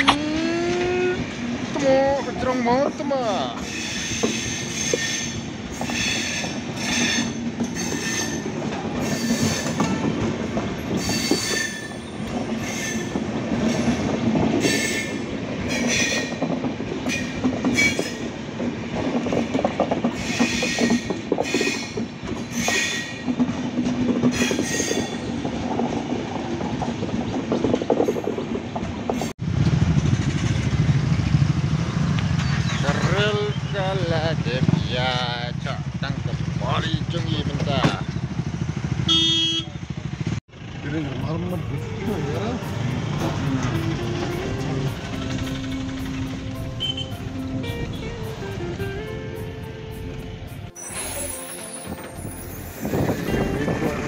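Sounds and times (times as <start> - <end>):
train wheels rumbling on rail: 0.0 - 54.0
wheel squeals and clacks: 3.6 - 18.4, 19.0 - 26.1, 26.8 - 31.4, 32.0 - 34.8
motorcycle engines idling: 29.5 - 48.6.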